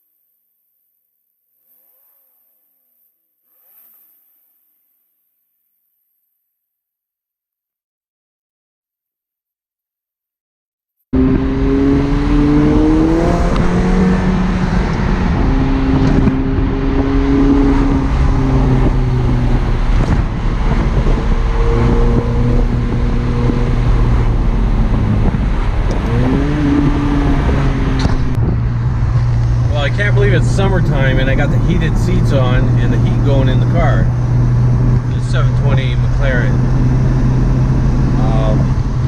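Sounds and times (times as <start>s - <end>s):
car engine accelerating: 11.2s - 39.0s
road noise: 11.2s - 39.0s.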